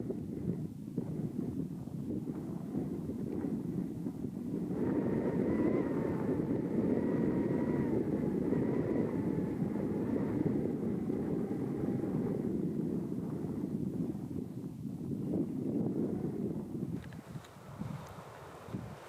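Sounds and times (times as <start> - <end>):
engine drone with wavering whine: 2.5 - 14.4.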